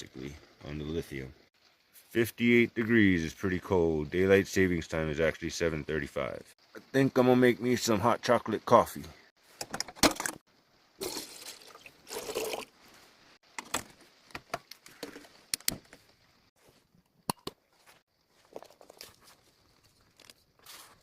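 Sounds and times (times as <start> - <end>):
water pouring: 11.0 - 13.0.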